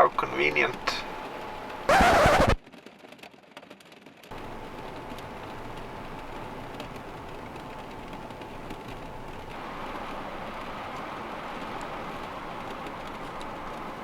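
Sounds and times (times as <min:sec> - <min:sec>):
snowstorm wind rushing: 0:09.6 - 0:14.0.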